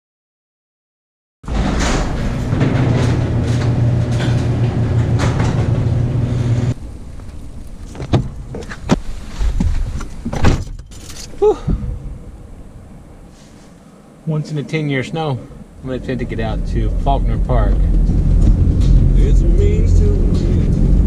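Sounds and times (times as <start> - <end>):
vehicle humming: 1.5 - 21.0
sharp knocks and clicks: 17.7 - 19.2.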